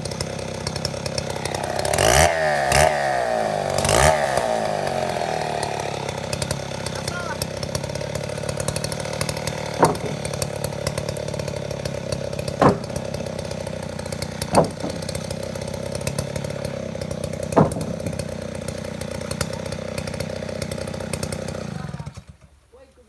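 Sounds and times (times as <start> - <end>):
chainsaw engine running: 0.0 - 22.5.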